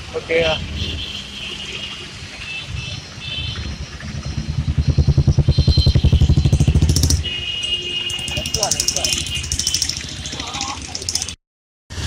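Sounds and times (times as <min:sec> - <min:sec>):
vehicle engine throbbing: 0:02.7 - 0:07.4, 0:08.1 - 0:10.2.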